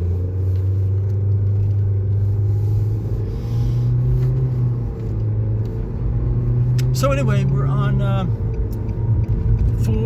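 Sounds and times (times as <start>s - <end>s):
car engine and road drone: 0.0s - 10.0s.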